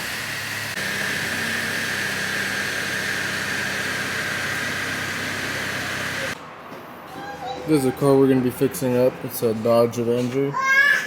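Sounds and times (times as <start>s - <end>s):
high whine: 0.0s - 6.4s
mechanical running noise: 0.0s - 6.4s.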